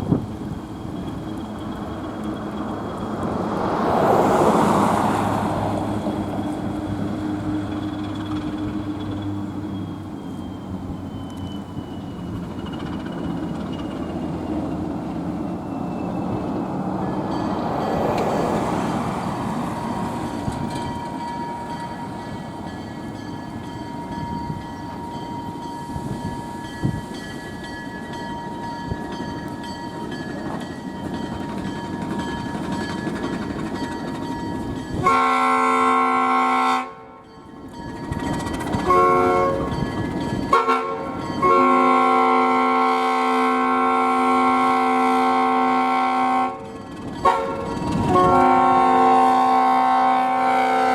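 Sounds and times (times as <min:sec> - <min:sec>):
diesel locomotive rumbling: 0:00.0 - 0:50.9
locomotive air horn blasts: 0:35.0 - 0:37.2, 0:38.7 - 0:39.8, 0:40.5 - 0:50.9.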